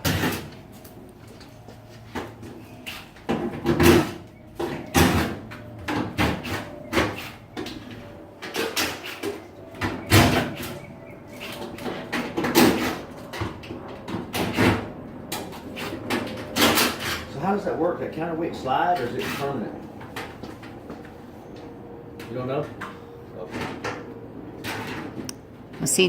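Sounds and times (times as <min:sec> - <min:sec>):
knocks and clatters of panels: 0:00.0 - 0:00.8, 0:02.1 - 0:17.4.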